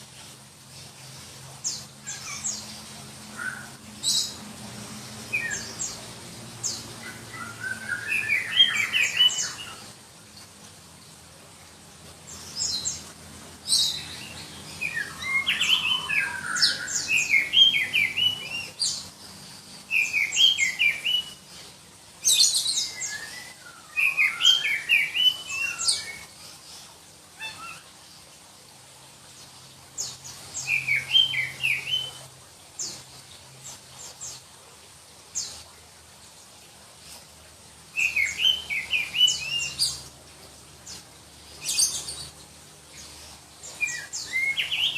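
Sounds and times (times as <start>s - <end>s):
bird singing whistled notes: 7.1s - 9.8s, 22.3s - 26.2s, 30.6s - 32.2s, 38.0s - 40.0s.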